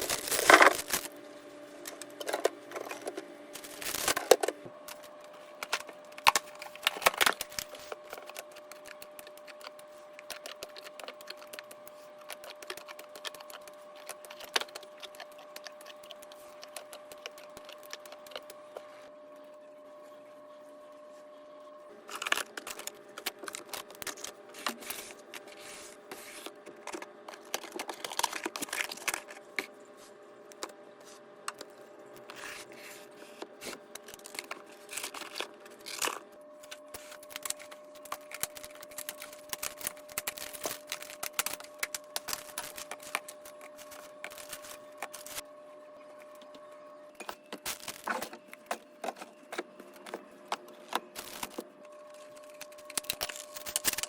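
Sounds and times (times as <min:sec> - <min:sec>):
plastic bags crinkling and tearing: 0:00.0 - 0:01.1, 0:03.6 - 0:04.5, 0:05.6 - 0:18.6, 0:22.0 - 0:25.6, 0:26.9 - 0:29.6, 0:33.6 - 0:45.4, 0:47.6 - 0:48.4, 0:51.0 - 0:54.0
faint steady hum: 0:00.0 - 0:54.0
items clicking and knocking: 0:01.9 - 0:18.6.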